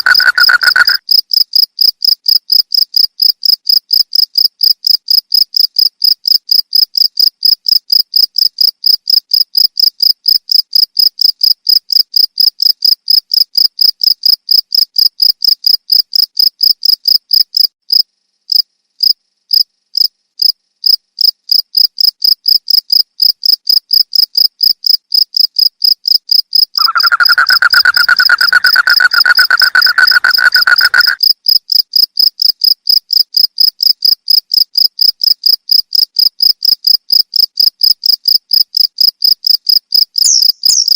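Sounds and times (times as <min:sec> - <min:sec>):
crickets chirping: 0:00.0 - 0:01.2, 0:26.3 - 0:31.8, 0:34.3 - 0:40.9.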